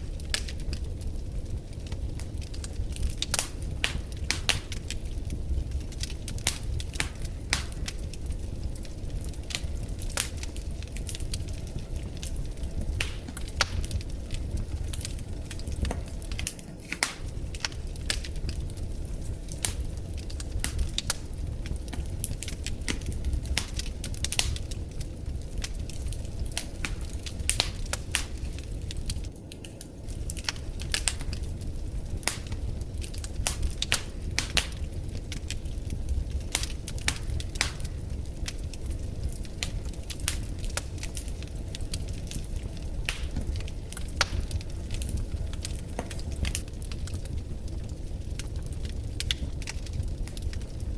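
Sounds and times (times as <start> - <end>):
wood fire crackling: 0.0 - 50.9.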